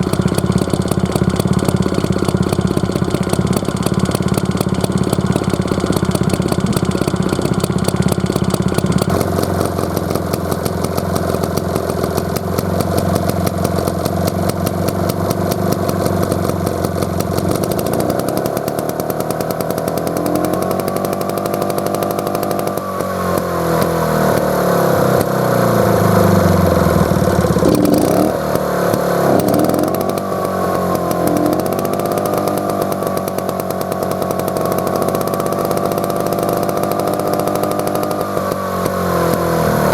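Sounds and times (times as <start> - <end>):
stationary engine running: 0.0 - 39.9.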